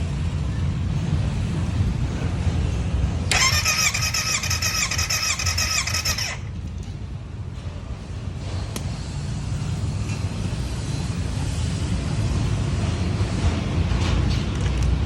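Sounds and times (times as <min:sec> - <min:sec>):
steady low rumble: 0:00.0 - 0:03.3
electric starter cranking engine: 0:03.3 - 0:06.6.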